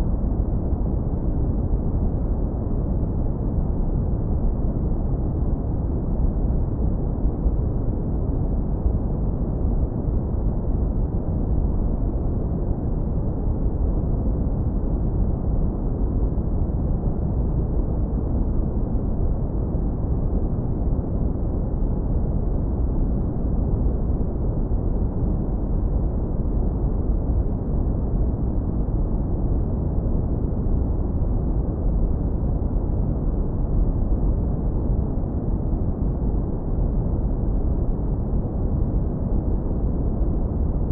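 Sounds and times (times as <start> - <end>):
deep brown noise rumble: 0.0 - 40.9.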